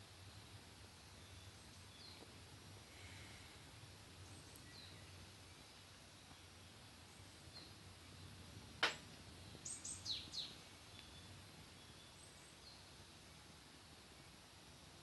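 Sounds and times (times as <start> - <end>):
bird chirping: 1.0 - 2.3, 4.2 - 8.4, 9.3 - 13.0
wood fire crackling pop: 8.8 - 9.1.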